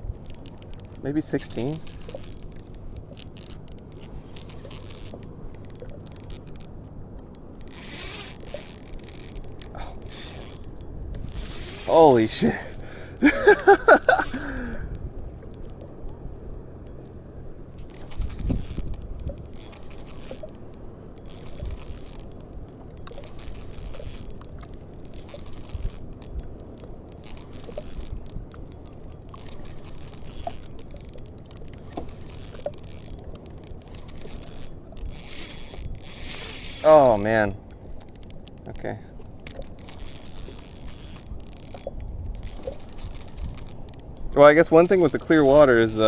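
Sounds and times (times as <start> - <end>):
clicks and knocks of fishing gear: 0.0 - 46.0
water lapping against kayak hull: 0.0 - 46.0.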